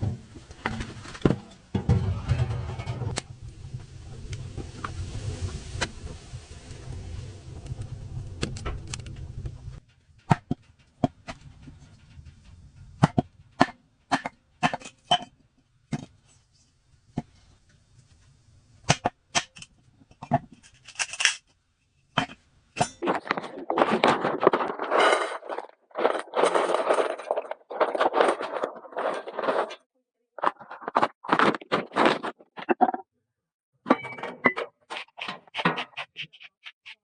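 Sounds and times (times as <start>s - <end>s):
low steady rumble: 1.7s - 10.2s.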